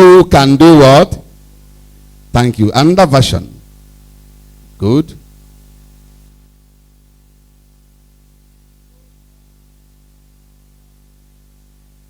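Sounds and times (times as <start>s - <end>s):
faint hiss: 0.0s - 12.0s
low electrical hum: 0.0s - 12.0s.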